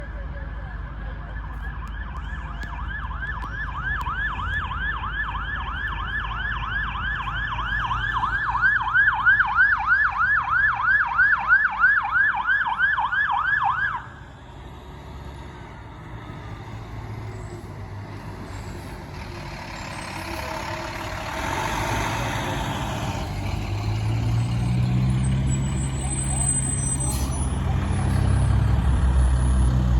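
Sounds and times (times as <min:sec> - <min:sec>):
heavy truck engine rumbling: 0:00.0 - 0:29.9
fire truck siren yelping: 0:01.2 - 0:14.4.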